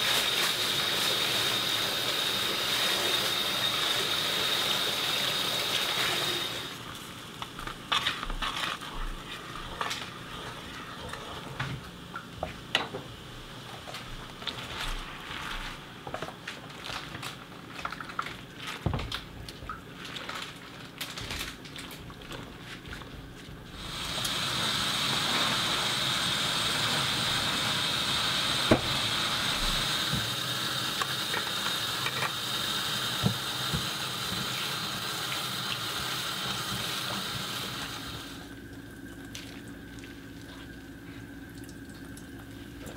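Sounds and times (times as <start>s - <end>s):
wooden spoon stirring wet greens: 7.4s - 11.2s
clicks and crackles: 16.2s - 22.5s
tap running into sink: 28.7s - 30.4s, 33.2s - 34.6s.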